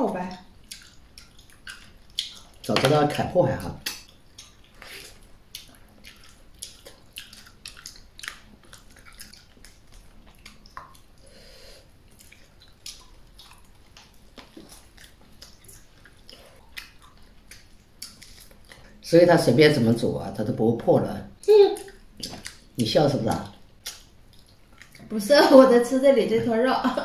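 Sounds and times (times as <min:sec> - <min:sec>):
wet chewing and sucking: 0:00.5 - 0:19.0, 0:21.8 - 0:22.8, 0:23.4 - 0:25.1.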